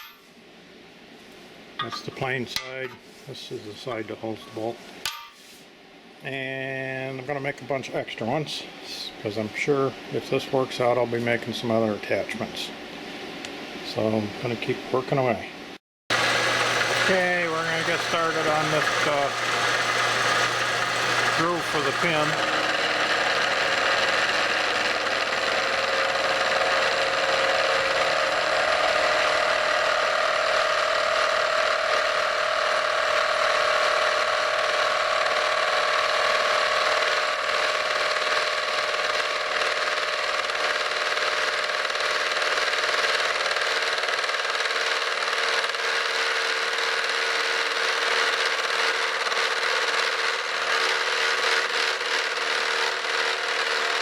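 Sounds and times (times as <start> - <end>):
metalworking machine cutting metal: 16.1 - 54.0.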